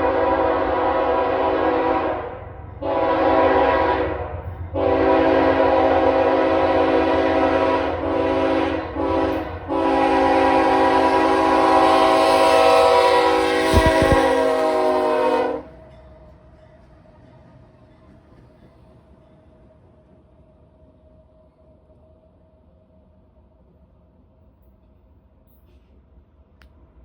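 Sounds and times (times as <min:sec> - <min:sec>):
locomotive air horn blasts: 0:00.0 - 0:15.8
train rumbling: 0:00.0 - 0:27.0.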